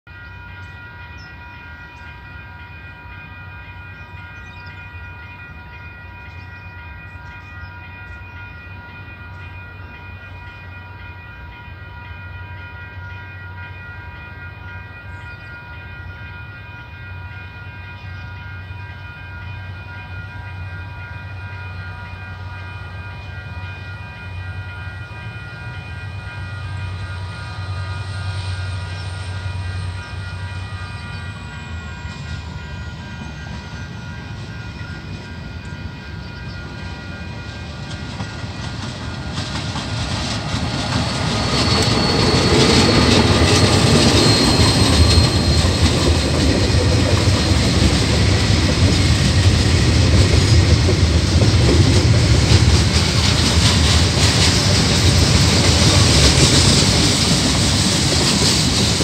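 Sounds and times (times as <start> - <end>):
steady high tones: 0.1 - 59.0
diesel locomotive engine rumble: 0.2 - 59.0.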